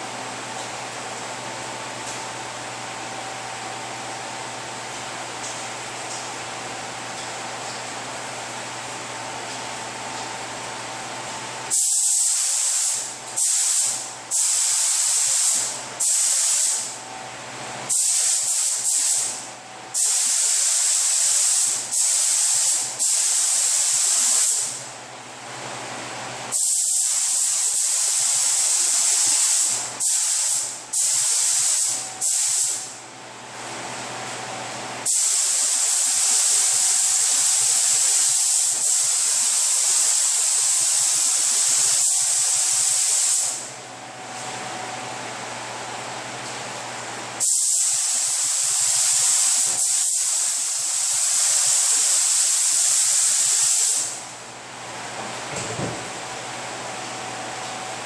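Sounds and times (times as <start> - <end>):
spray gun hissing: 11.7 - 17.0, 17.9 - 19.4, 20.0 - 24.8, 26.5 - 32.9, 35.0 - 43.7, 47.4 - 54.2.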